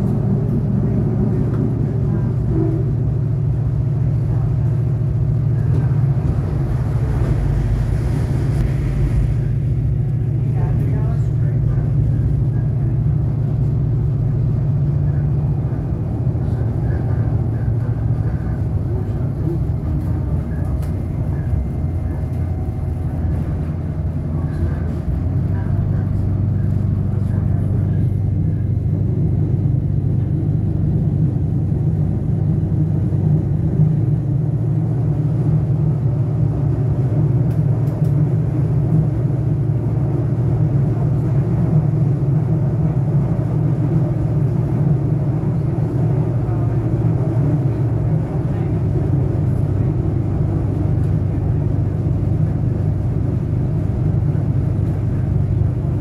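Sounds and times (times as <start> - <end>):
diesel engine drone: 0.0 - 56.0.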